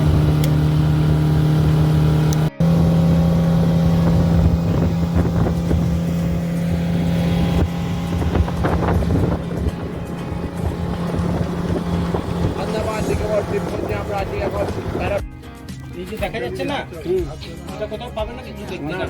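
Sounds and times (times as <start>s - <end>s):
motorboat engine humming: 0.0s - 19.0s
wind on microphone: 2.6s - 15.2s.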